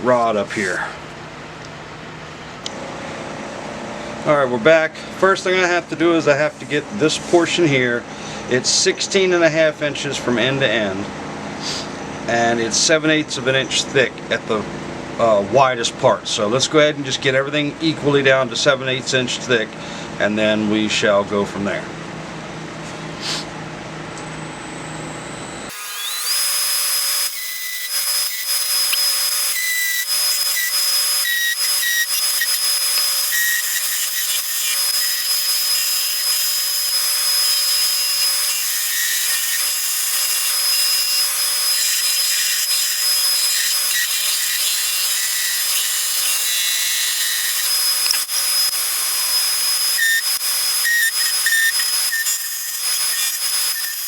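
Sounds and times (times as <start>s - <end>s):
wood lathe whining: 25.6s - 54.0s.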